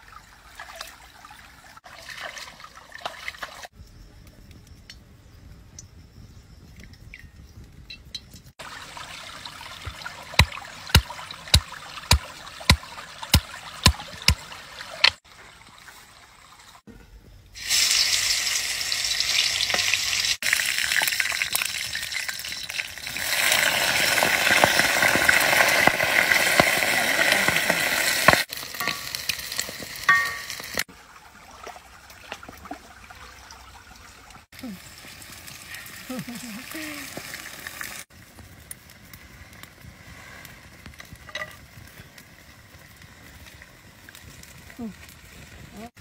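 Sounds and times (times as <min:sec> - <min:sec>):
food sizzling in hot oil: 0:17.6 - 0:30.9, 0:34.5 - 0:38.2.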